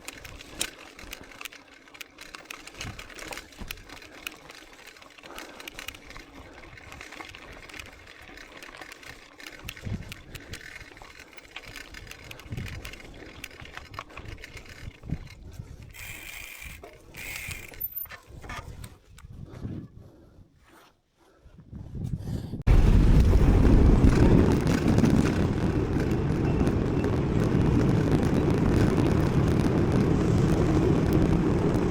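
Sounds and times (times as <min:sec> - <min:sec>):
bike rattling and clicking: 0:00.0 - 0:19.7, 0:22.7 - 0:31.9
tyre noise on trail: 0:00.0 - 0:31.9.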